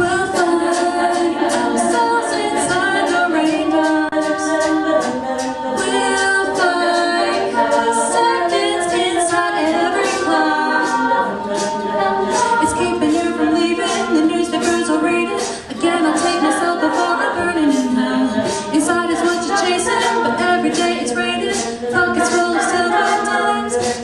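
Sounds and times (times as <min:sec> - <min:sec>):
women singing a cappella harmony: 0:00.0 - 0:24.0.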